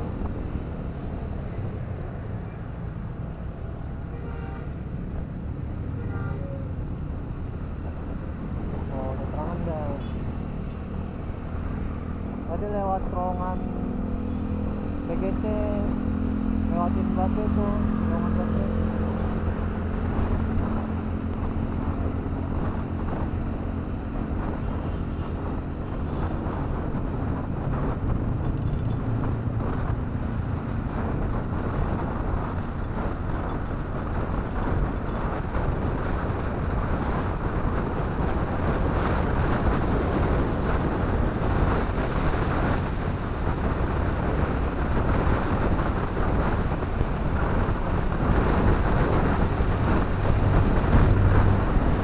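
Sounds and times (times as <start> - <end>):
motorcycle running: 0.0 - 52.0
wind noise on microphone: 0.0 - 52.0.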